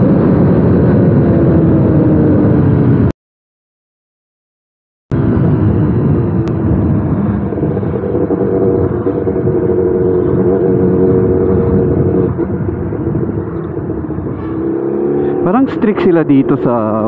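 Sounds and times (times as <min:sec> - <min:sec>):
road and wind noise: 0:00.0 - 0:03.1, 0:05.1 - 0:17.0
motorcycle engine running: 0:05.2 - 0:17.0.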